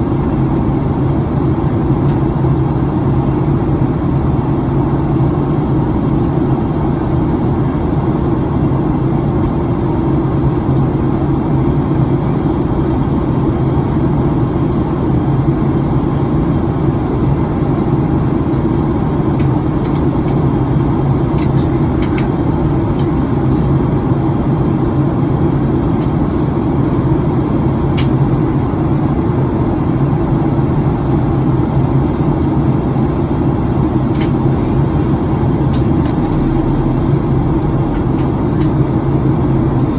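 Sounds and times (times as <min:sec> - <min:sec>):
jet engines droning: 0:00.0 - 0:39.9
air rushing over fuselage: 0:33.2 - 0:39.9.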